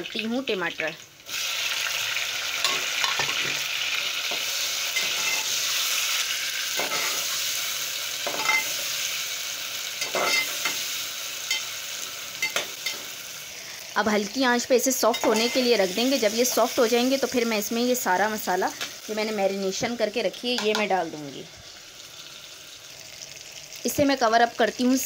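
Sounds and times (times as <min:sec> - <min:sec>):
tomatoes sizzling in hot oil: 0:00.0 - 0:25.0
metal spoon scraping a pot: 0:04.3 - 0:05.9.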